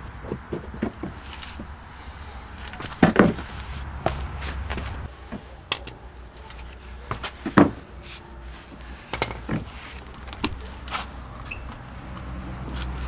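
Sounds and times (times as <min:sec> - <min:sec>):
knocks of handling tools: 0:02.6 - 0:11.8.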